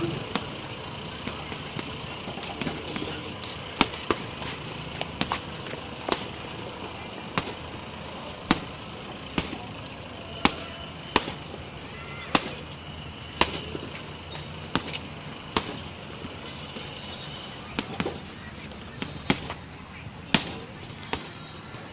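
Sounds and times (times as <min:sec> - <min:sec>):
punching bag being struck: 0:01.2 - 0:06.5, 0:07.3 - 0:07.7, 0:08.4 - 0:09.7, 0:10.4 - 0:13.8, 0:14.6 - 0:16.4, 0:17.7 - 0:18.3, 0:18.9 - 0:19.7, 0:20.3 - 0:21.5.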